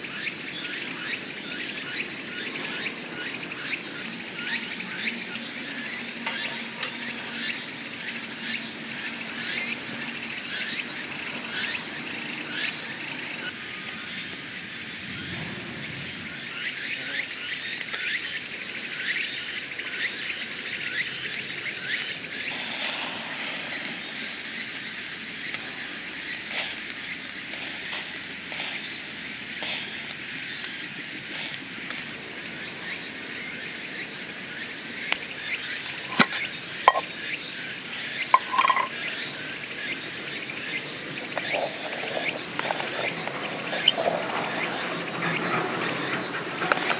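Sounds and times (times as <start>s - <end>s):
insects chirping: 0.0s - 46.9s
sharp clicks and knocks: 38.4s - 38.9s.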